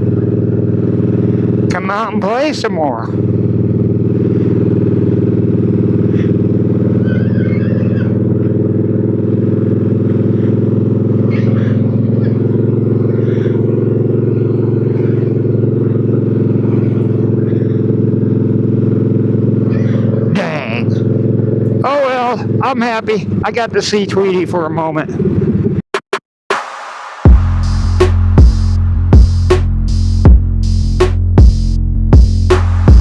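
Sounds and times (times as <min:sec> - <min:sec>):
motorcycle engine droning: 0:00.0 - 0:25.8.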